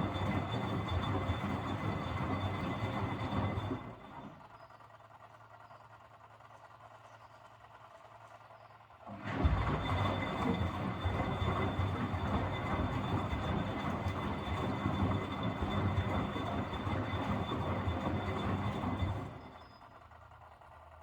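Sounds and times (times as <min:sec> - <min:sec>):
washing machine drum rumbling: 0:09.1 - 0:19.6.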